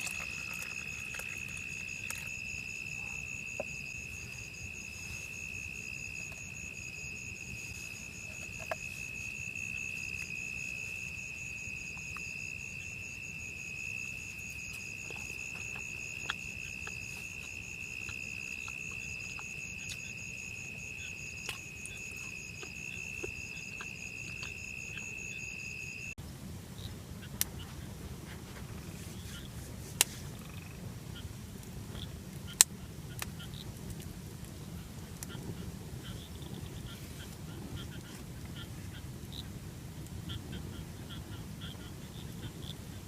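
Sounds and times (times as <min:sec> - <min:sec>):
insect rapid pulsing call: 0:00.0 - 0:26.2, 0:30.3 - 0:30.8
insect shrill drone: 0:00.0 - 0:26.2
low background noise: 0:00.0 - 0:43.0.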